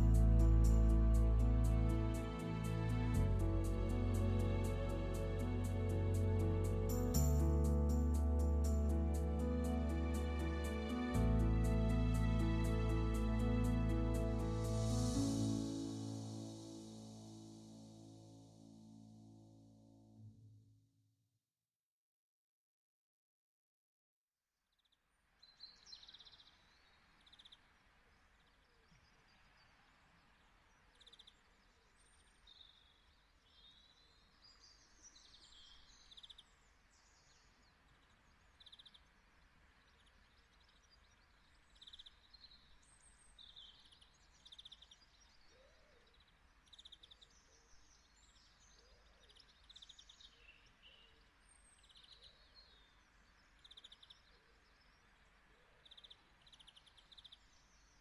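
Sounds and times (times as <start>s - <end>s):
low steady hiss: 0.0s - 19.2s, 25.1s - 58.0s
small birds chirping: 25.4s - 58.0s.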